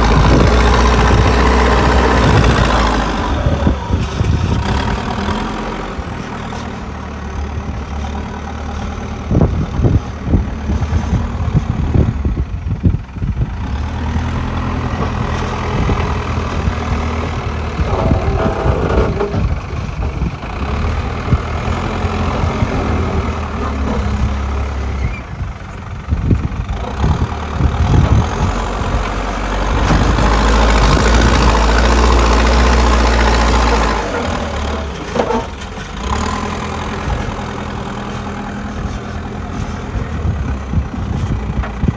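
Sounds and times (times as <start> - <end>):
excavator diesel engine running: 0.0 - 41.9
sharp knocks and clatters: 17.8 - 20.6.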